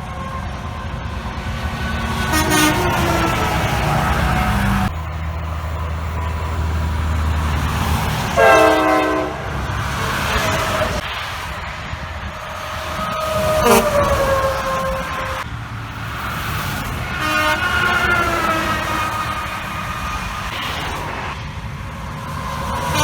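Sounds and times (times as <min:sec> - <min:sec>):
trucks passing on highway: 0:00.0 - 0:23.0
train-style air horn: 0:02.0 - 0:04.9, 0:08.4 - 0:11.0, 0:13.3 - 0:15.4, 0:17.1 - 0:19.8, 0:22.8 - 0:23.0.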